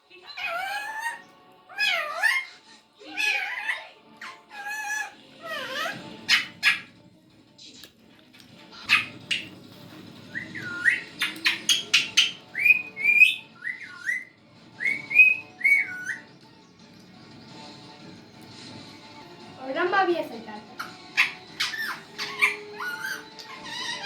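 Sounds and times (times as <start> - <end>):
parrot whistling: 0.4 - 6.9, 10.2 - 16.4, 20.7 - 24.0
parrot squawks and clicks: 10.6 - 14.2, 20.8 - 24.0.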